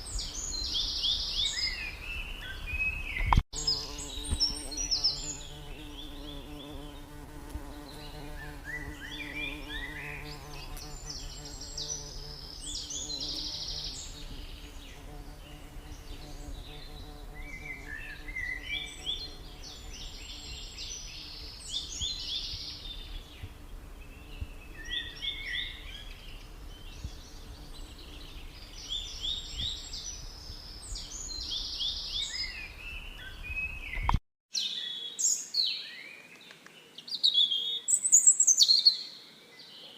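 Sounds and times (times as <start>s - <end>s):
songbird chirps and trills: 0.0s - 39.9s.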